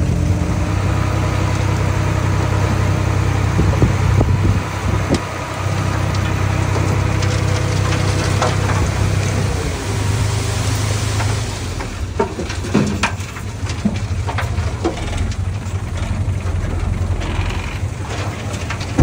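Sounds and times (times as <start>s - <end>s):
diesel engine running: 0.0s - 19.0s
sharp knocks and cracks: 11.2s - 19.0s.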